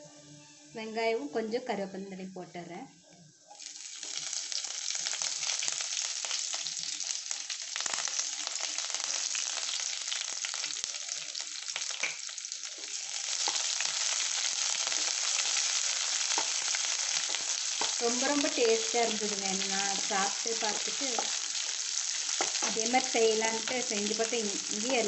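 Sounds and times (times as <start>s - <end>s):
onions sizzling in oil: 3.5s - 25.0s.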